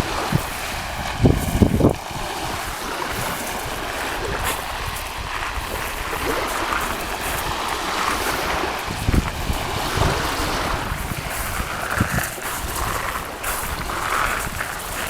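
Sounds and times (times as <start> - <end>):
sea water rushing: 0.0 - 15.0
wind buffeting microphone: 0.0 - 15.0.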